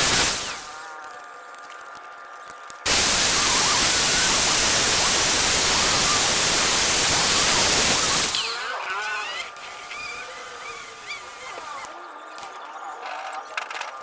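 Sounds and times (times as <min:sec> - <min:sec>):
loud static hiss: 0:00.0 - 0:01.0, 0:02.8 - 0:12.0.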